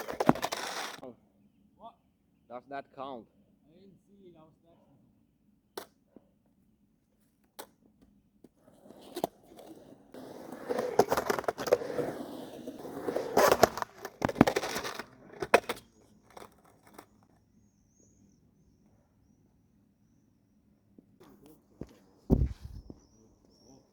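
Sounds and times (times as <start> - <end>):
skateboard clacking on ground: 0.0 - 1.0, 8.6 - 17.3
skateboard rolling and scraping: 0.0 - 1.0, 8.5 - 18.2, 21.3 - 23.6.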